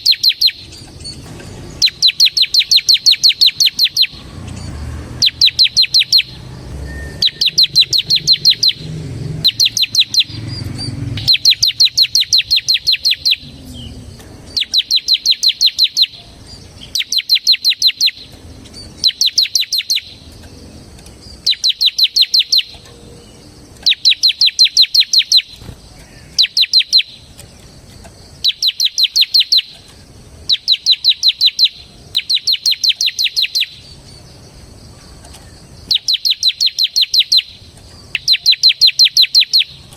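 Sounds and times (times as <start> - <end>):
bird song of sharp high notes: 0.0 - 39.9
low rumble: 0.7 - 12.6.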